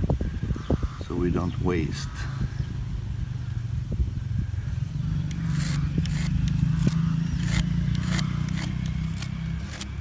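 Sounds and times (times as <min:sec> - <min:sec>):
small engine humming: 0:02.3 - 0:10.0.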